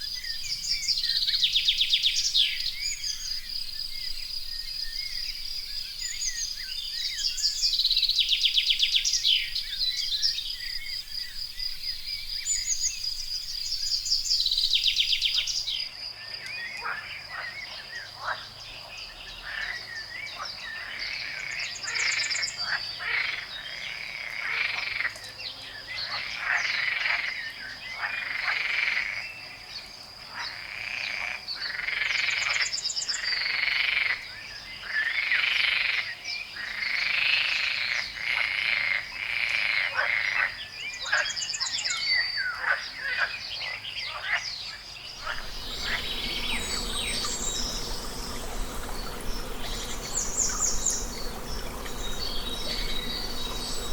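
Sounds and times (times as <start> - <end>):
frogs croaking: 44.1 - 53.9
high insect trill: 45.2 - 53.9
hissy ambience: 45.2 - 53.9.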